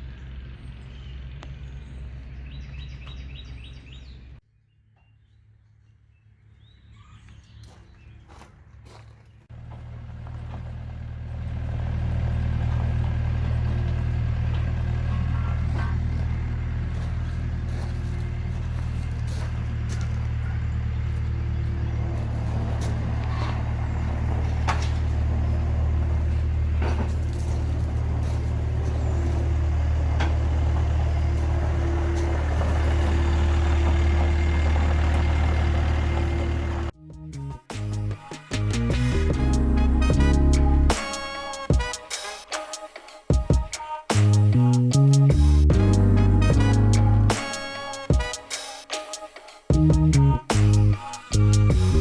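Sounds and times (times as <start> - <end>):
heavy machine engine running: 9.5 - 37.0.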